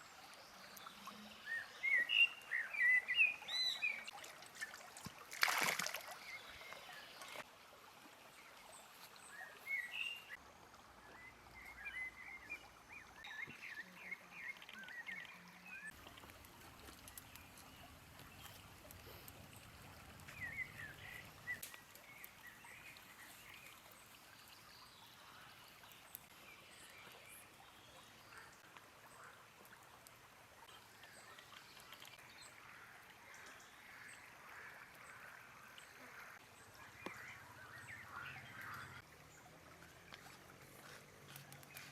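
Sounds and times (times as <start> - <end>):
birds chirping: 13.2 - 23.7, 36.7 - 39.1, 39.8 - 41.9.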